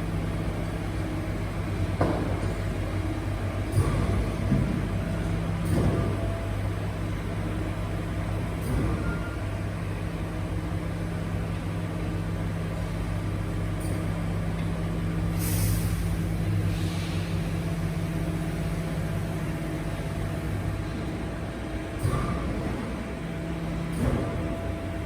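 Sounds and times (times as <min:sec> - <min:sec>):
garbage truck engine hum: 0:00.0 - 0:25.0
air release hiss: 0:15.3 - 0:17.4.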